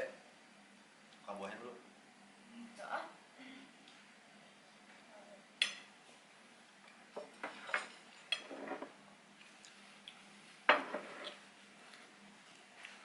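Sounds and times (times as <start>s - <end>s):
tableware clinking: 7.2s - 8.9s, 10.7s - 11.4s.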